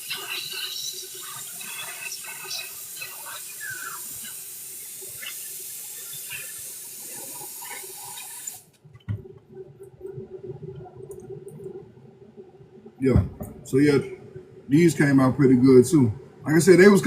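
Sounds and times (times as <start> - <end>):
tap water running into sink: 0.0 - 9.2.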